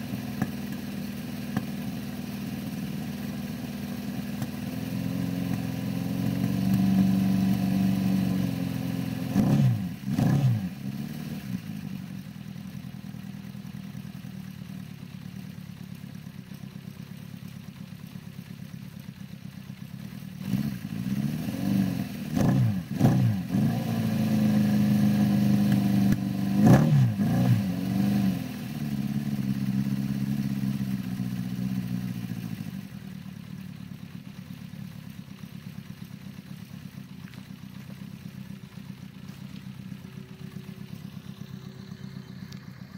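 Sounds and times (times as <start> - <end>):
motorcycle engine idling: 0.0 - 42.9.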